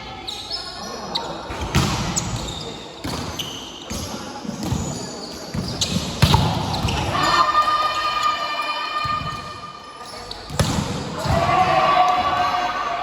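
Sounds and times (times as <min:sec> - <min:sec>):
players' voices: 0:00.0 - 0:13.0
volleyball hits and bounces: 0:01.5 - 0:03.4, 0:05.5 - 0:07.2, 0:10.5 - 0:12.5.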